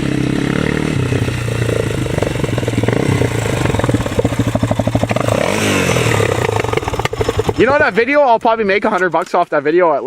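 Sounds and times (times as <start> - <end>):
quad engine running: 0.0 - 8.6.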